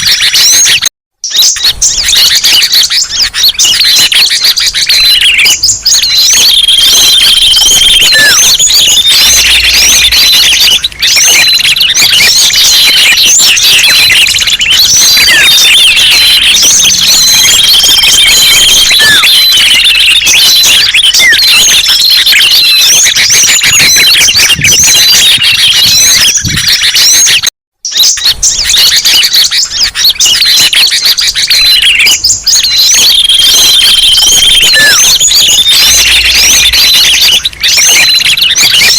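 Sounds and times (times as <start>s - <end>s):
high whistle: 0.0s - 38.9s
songbirds chirping and twittering: 0.0s - 38.9s.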